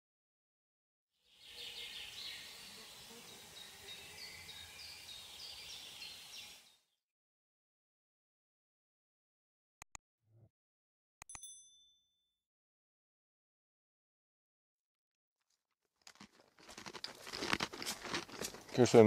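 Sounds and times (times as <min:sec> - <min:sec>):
small birds chirping: 0:01.2 - 0:06.9.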